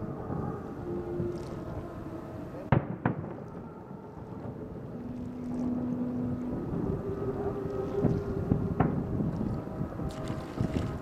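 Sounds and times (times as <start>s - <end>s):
fireworks booming: 2.7s - 3.7s.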